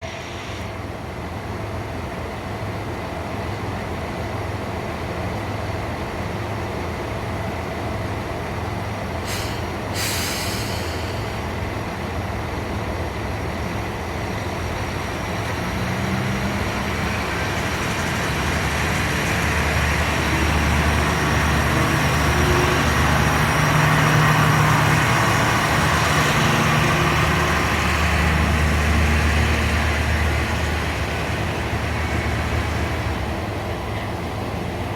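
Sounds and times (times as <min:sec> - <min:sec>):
diesel railcar engine: 0:00.0 - 0:34.9
air hisses: 0:09.2 - 0:11.5.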